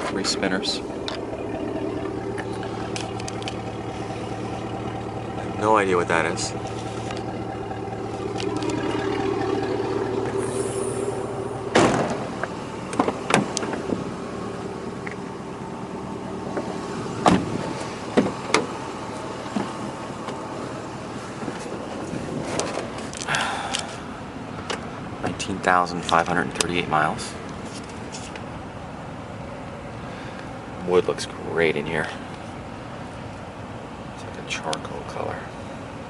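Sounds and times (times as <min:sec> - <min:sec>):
car engine idling: 0:00.0 - 0:36.0.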